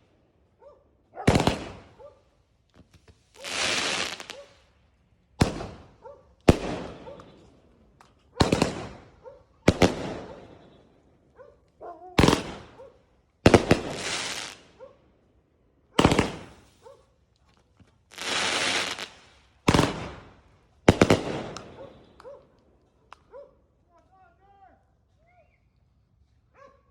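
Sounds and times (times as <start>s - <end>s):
firework shots firing: 1.2s - 2.0s, 2.9s - 4.6s, 5.4s - 7.6s, 8.4s - 10.9s, 12.2s - 14.8s, 16.0s - 16.8s, 18.1s - 22.4s
hissing firework burst: 3.0s - 4.5s, 13.5s - 14.6s, 18.2s - 20.2s.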